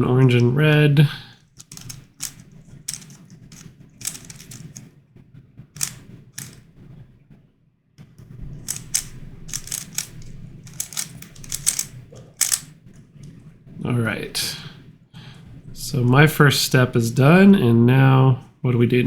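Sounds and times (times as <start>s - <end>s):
plastic puzzle clicking: 1.4s - 4.8s, 5.8s - 6.6s, 8.6s - 12.8s.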